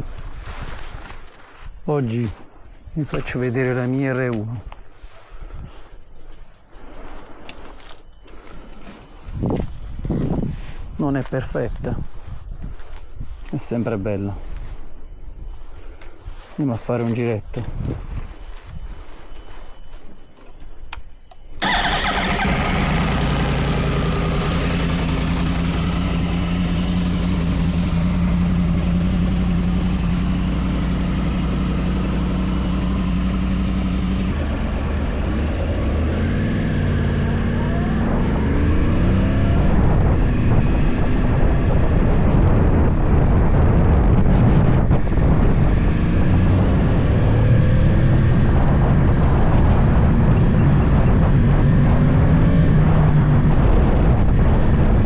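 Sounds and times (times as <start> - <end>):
motorcycle engine idling and revving: 21.6 - 55.0.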